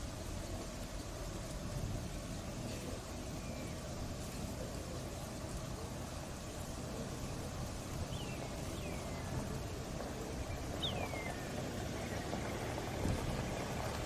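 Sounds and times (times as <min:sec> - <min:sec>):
low rumbling hiss: 0:00.0 - 0:14.0
bird whistled calls: 0:08.1 - 0:09.4, 0:10.5 - 0:11.6.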